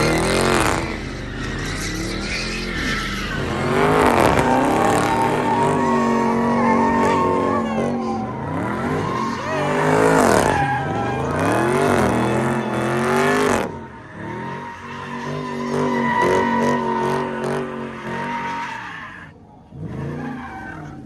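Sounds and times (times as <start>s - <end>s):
car engine revving hard: 0.0s - 14.4s
tyres screeching: 0.0s - 19.4s.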